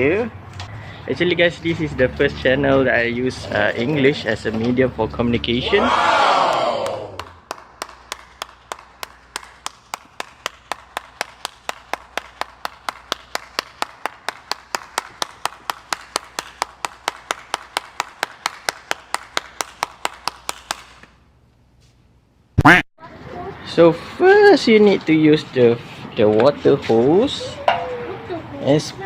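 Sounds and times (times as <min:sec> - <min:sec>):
sharp evenly spaced clicks: 0:07.2 - 0:21.2.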